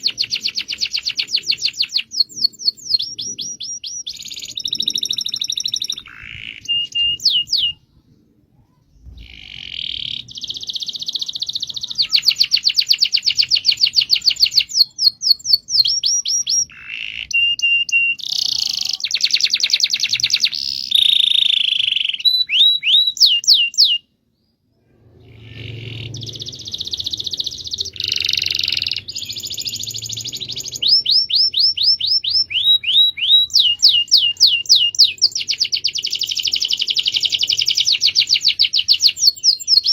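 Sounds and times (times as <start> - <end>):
canary singing: 0.0 - 8.0, 8.9 - 24.2, 25.0 - 39.9.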